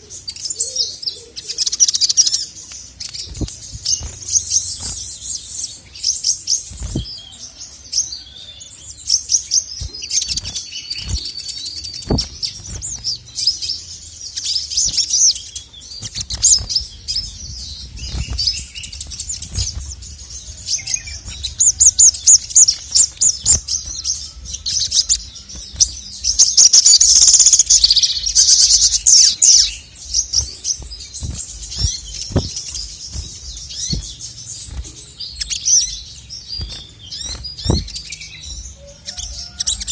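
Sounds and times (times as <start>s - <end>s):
bird singing rapid high chirps: 0.0s - 39.9s.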